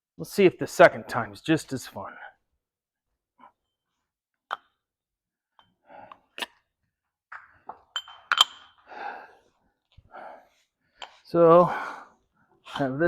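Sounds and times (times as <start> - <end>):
metal clinks: 7.9 - 8.8.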